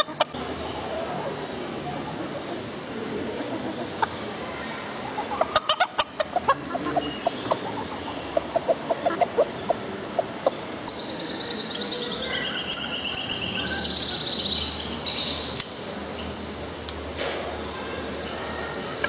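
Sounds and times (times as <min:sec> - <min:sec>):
chickens clucking: 0:00.0 - 0:10.9.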